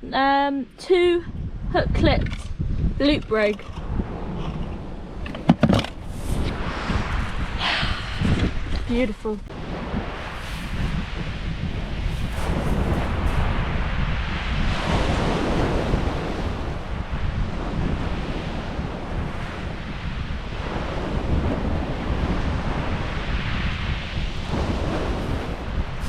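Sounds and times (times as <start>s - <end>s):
wind buffeting the microphone: 0.2s - 26.0s
waves breaking on a shingle beach: 3.1s - 26.0s.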